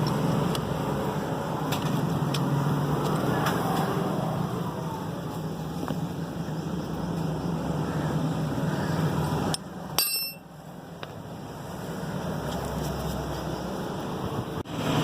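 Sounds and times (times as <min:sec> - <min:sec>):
metal object clinking: 0:10.0 - 0:10.5.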